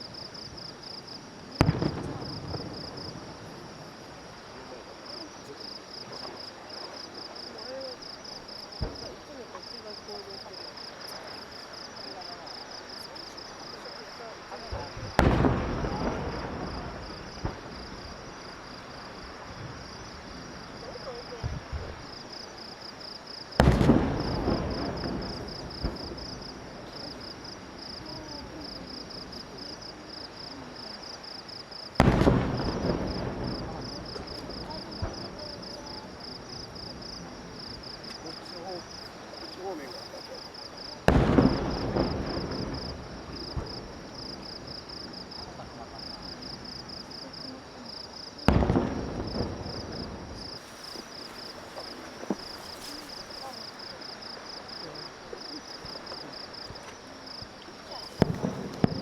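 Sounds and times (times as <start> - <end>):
fireworks booming: 0.0 - 22.7, 23.3 - 59.0
insects chirping: 0.0 - 59.0
firework bang with echo: 1.6 - 3.3, 14.7 - 18.1, 23.6 - 27.2, 32.0 - 36.1, 41.0 - 44.6, 48.4 - 50.7, 58.1 - 59.0.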